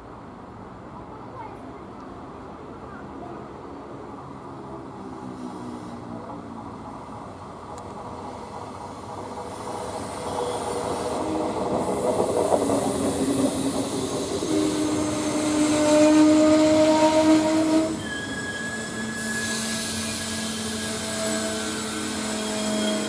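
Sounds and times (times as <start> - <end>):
train brakes squealing: 5.3 - 6.1, 8.9 - 23.0.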